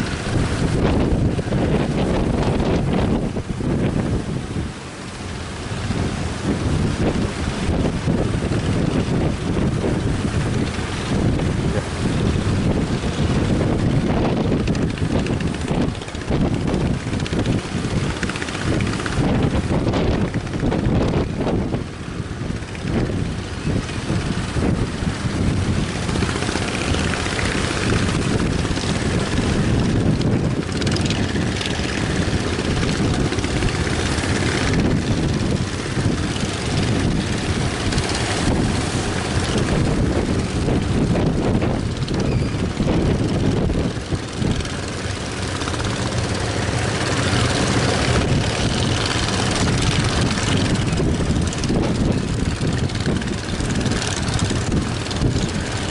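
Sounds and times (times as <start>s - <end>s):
boat engines running: 0.0s - 55.9s
wind buffeting microphone: 0.0s - 55.9s.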